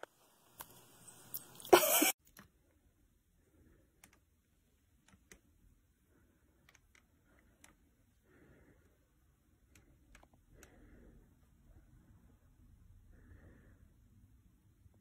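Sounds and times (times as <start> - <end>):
faint hiss: 0.0 - 2.2
faint clicks: 3.9 - 5.6, 6.5 - 7.9, 9.6 - 11.0.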